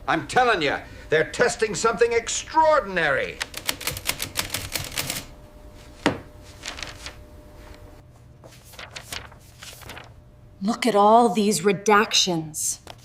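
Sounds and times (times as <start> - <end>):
rapid typing clicks: 3.3 - 5.3.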